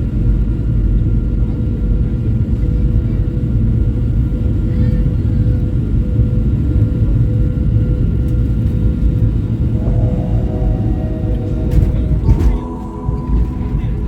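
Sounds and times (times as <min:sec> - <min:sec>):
airliner engines rumbling in cabin: 0:02.5 - 0:14.0
faint even hum: 0:09.8 - 0:14.0.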